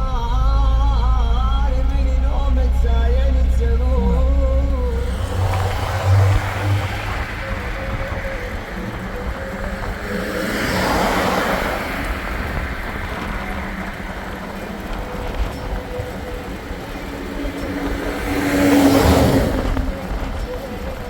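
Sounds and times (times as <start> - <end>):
motor vehicle running: 0.0 - 21.0
rushing noise: 3.1 - 21.0.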